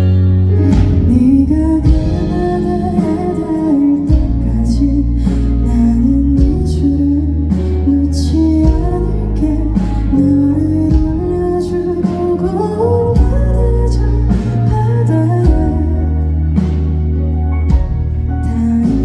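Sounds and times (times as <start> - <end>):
bass: 0.0 - 19.0
live band music: 0.0 - 19.0
woman singing: 0.5 - 16.4, 18.4 - 19.0
drum beat: 1.9 - 3.2.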